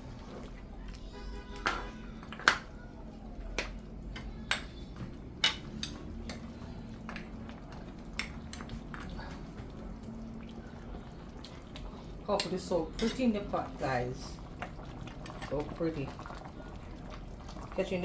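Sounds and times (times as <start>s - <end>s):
low steady hum: 0.0s - 18.0s
spoon tapping cooking pot: 3.6s - 6.5s.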